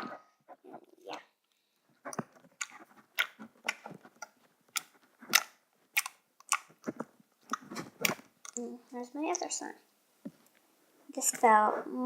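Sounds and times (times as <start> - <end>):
slime squished by hand: 2.6 - 8.6.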